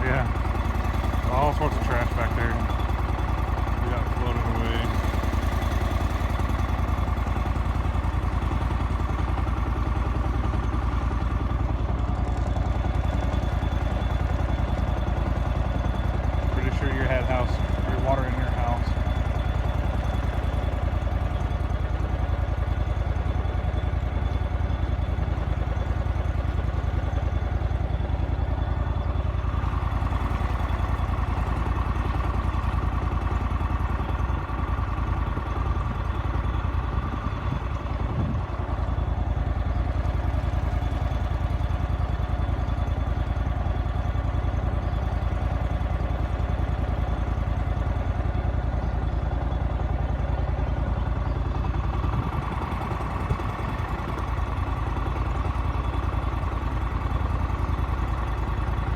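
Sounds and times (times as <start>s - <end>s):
engine running at low speed: 0.0s - 58.9s.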